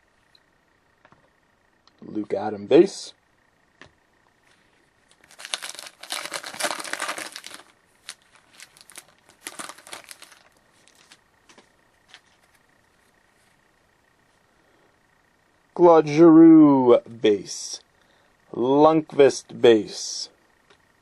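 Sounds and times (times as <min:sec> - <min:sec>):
card pack wrapper crinkling: 0:05.0 - 0:12.6.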